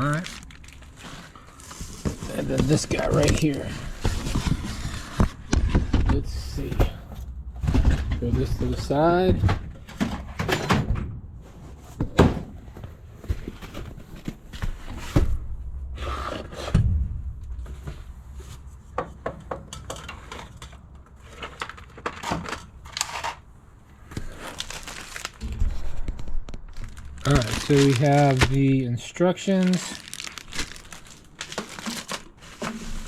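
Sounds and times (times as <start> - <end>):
packaging rustling: 0.0 - 5.4, 24.1 - 28.8, 29.4 - 33.0
unpacking parts from cardboard box: 0.0 - 10.7, 19.9 - 33.0
knocks and thumps: 4.0 - 11.2.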